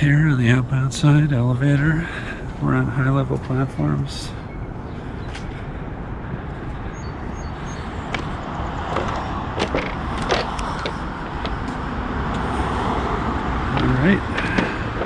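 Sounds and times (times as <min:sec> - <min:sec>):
road traffic rumble: 0:00.0 - 0:15.0
footsteps clicking on platform: 0:06.3 - 0:12.5, 0:13.7 - 0:15.0.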